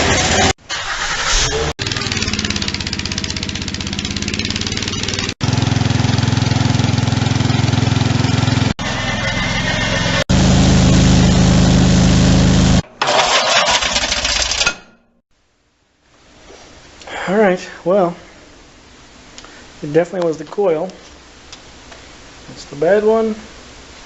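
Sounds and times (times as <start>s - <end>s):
lawn tractor engine running: 0.0s - 14.6s.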